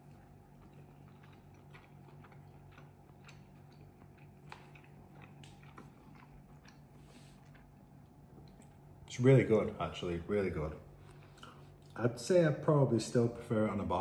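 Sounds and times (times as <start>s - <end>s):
person chewing: 0.0s - 9.0s, 10.9s - 12.0s
low room hum: 0.0s - 14.0s.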